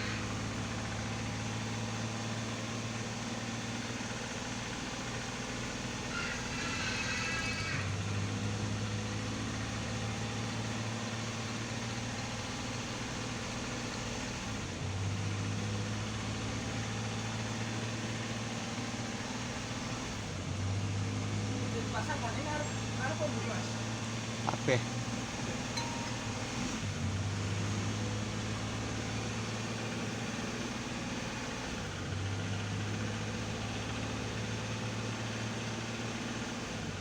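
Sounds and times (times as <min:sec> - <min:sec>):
car engine idling: 0:00.0 - 0:06.4.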